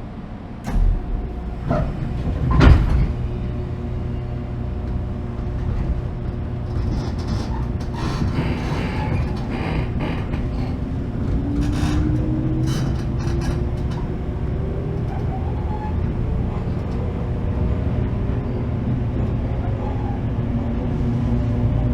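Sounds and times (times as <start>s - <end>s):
low train rumble: 0.0s - 21.9s
train knock: 0.7s - 18.4s
traction motor whine: 0.7s - 20.0s.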